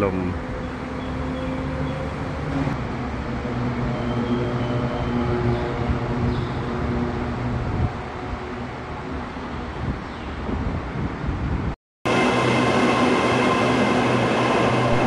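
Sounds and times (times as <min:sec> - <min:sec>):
train mechanical hum: 0:00.0 - 0:10.0
noisy train rumble: 0:00.0 - 0:15.0.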